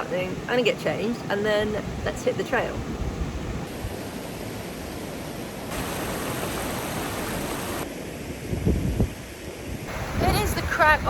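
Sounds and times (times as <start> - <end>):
flowing water rushing: 3.6 - 8.3, 9.9 - 11.0.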